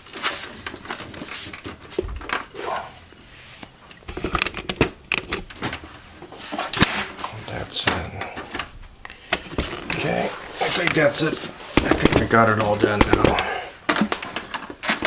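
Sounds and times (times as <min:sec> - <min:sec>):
faceplate snapping into place: 0:06.7 - 0:07.2
plastic faceplate clicking and rubbing: 0:07.8 - 0:15.0.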